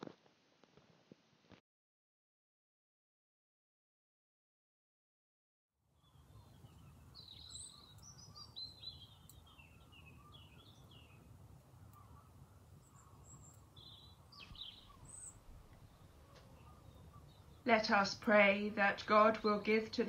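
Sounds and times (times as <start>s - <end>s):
songbird chirping: 5.9s - 20.0s
low outdoor rumble: 6.0s - 20.0s.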